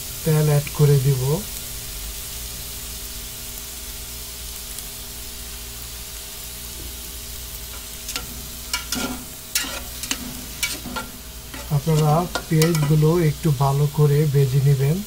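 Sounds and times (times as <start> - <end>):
onions sizzling in hot oil: 0.0 - 15.0
fork scraping metal pot: 7.7 - 13.2.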